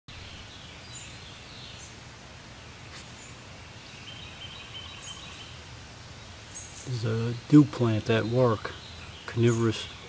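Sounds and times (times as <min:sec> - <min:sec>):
birds chirping: 0:00.1 - 0:10.0
low background noise: 0:00.1 - 0:10.0
bird trill: 0:03.9 - 0:05.6.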